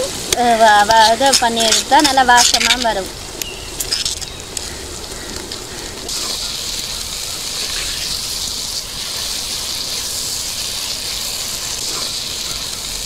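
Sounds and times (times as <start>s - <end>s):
vegetables sizzling in hot oil: 6.1s - 13.0s.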